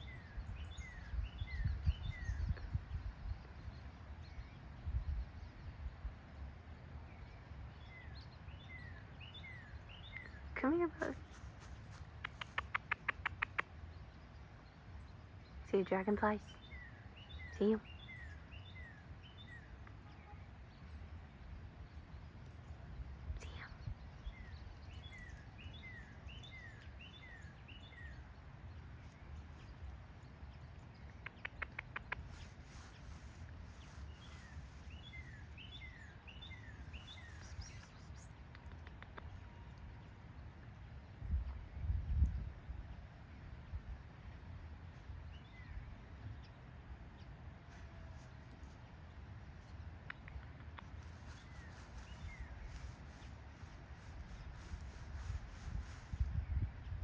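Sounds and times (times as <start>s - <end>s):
small birds chirping: 0.0s - 39.8s, 44.8s - 57.0s
sharp clicks: 12.0s - 13.7s, 31.1s - 32.5s, 37.6s - 39.3s.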